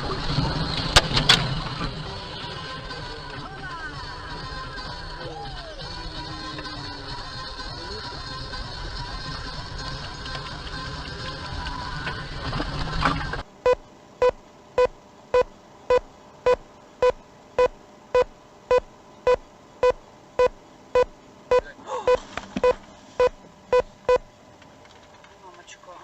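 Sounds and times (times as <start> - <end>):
electronic warning beeps: 13.6 - 24.2.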